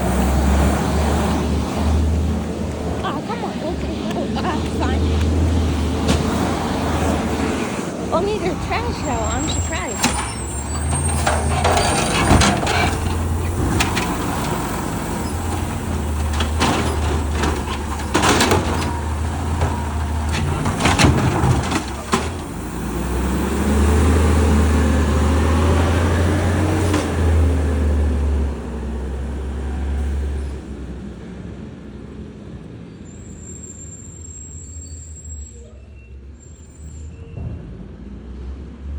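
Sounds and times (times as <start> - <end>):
garbage truck engine running: 0.0 - 33.2
loud metal clanks: 8.4 - 22.9.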